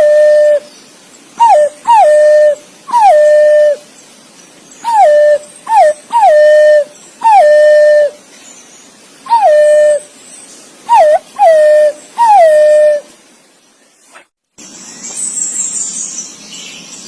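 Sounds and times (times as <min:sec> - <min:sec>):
pigeon whistled calls: 0:00.0 - 0:00.7, 0:01.4 - 0:03.8, 0:04.8 - 0:08.2, 0:09.3 - 0:10.1, 0:10.9 - 0:13.1.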